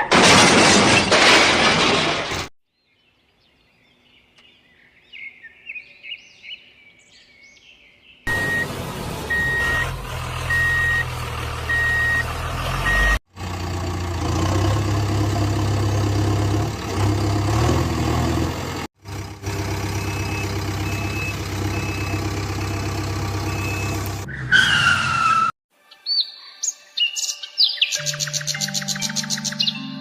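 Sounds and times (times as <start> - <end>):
bird chirps: 2.8 - 8.6, 25.9 - 30.0
reversing alarm beeps: 8.3 - 8.7, 9.3 - 9.9, 10.5 - 11.1, 11.7 - 13.2
heavy vehicle engine running: 8.3 - 24.3.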